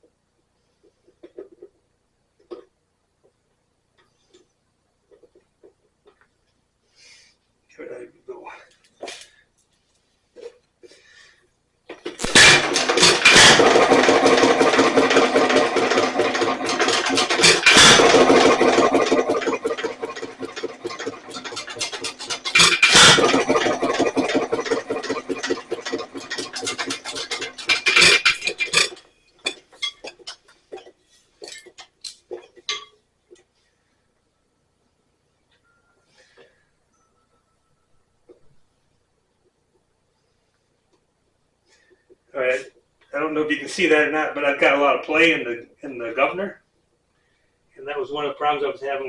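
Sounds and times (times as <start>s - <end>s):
engine slowing with clicks: 12.0s - 29.6s
old engine clattering: 12.1s - 32.8s.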